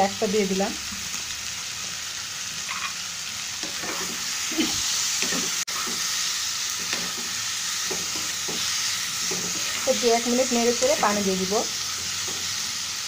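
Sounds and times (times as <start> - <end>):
vegetables sizzling in a pan: 0.0 - 13.0
spatula scraping and knocking pan: 3.6 - 6.1, 6.7 - 11.0, 11.9 - 12.6.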